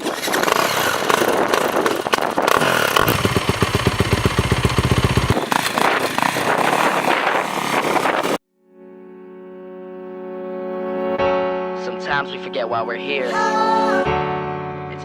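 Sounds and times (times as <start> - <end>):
motocross bike engine running: 0.0 - 8.4.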